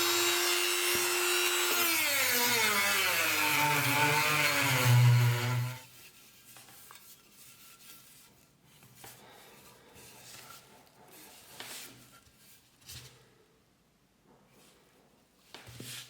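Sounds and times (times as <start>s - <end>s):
hand rubbing and scraping: 4.8s - 13.2s.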